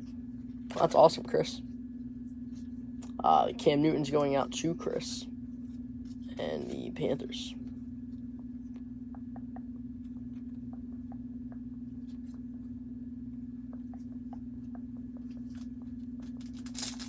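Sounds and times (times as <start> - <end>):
steady electrical hum: 0.0 - 17.0
cards ticking and sliding: 15.3 - 17.0
wrapper rustling: 16.2 - 17.0.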